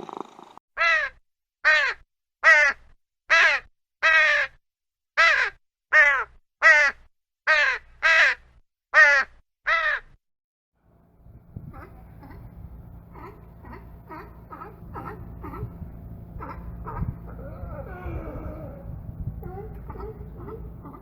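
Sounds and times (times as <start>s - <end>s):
bird calling: 11.2s - 21.0s.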